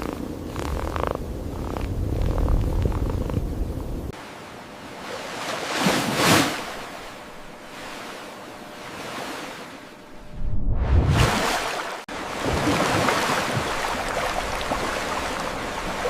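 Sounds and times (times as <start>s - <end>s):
cat purring: 0.0s - 3.8s
waves washing in: 3.8s - 16.0s.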